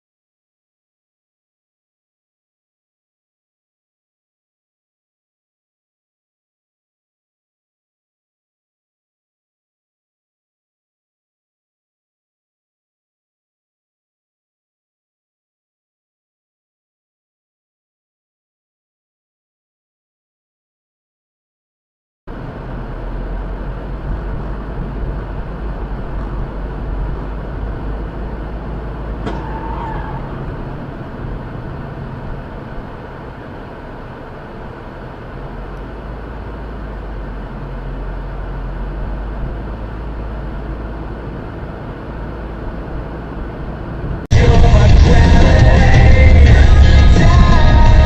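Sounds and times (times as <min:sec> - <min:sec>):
car driving road noise: 0:22.3 - 0:48.0
loud music: 0:44.3 - 0:48.0.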